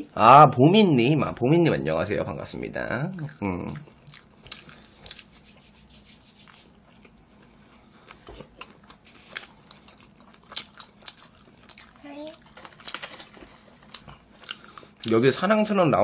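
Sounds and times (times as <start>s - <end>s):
wet chewing clicks and smacks: 3.1s - 5.3s, 8.0s - 12.0s, 13.8s - 15.2s.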